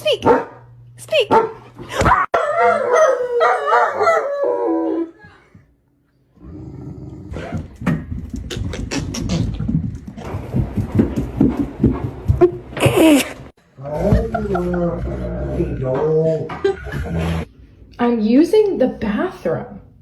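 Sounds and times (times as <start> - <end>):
dog howling and whining: 2.2 - 5.2
scattered knocks: 7.6 - 13.0.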